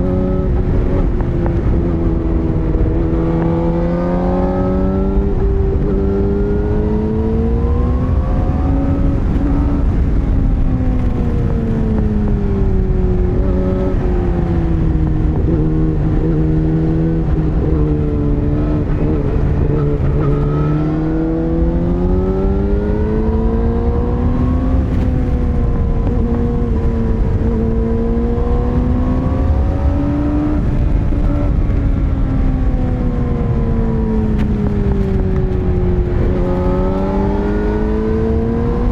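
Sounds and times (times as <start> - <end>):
motorcycle engine running: 21.6 - 38.9.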